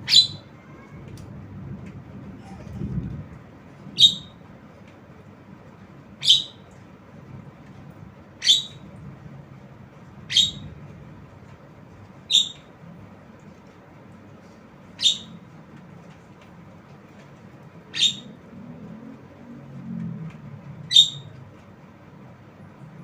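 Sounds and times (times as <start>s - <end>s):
bird giving sharp high calls: 0.0s - 0.5s, 6.2s - 6.6s, 8.4s - 8.8s, 12.3s - 12.7s, 15.0s - 15.4s, 17.9s - 18.4s.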